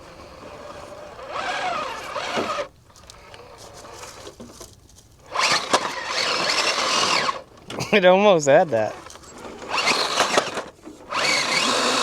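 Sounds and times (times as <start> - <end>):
toy car motor whirring: 0.0 - 4.2, 5.3 - 7.4, 9.0 - 12.0.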